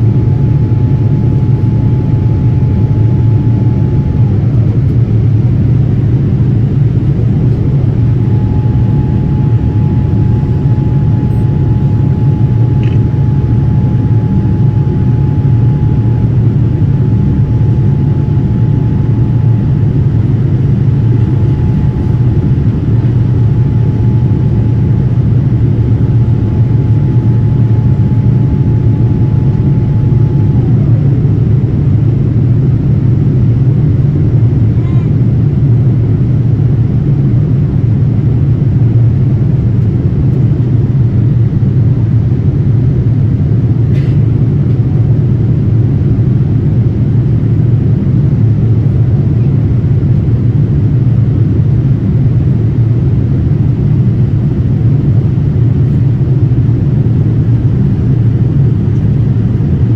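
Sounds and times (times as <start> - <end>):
airliner engines roaring: 0.0 - 59.9
faint thin whine: 7.4 - 31.6.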